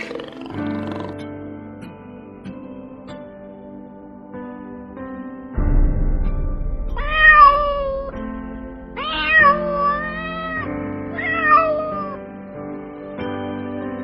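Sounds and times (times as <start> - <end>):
soft background music: 0.0 - 14.0
cat meowing: 7.0 - 8.2, 9.0 - 12.2.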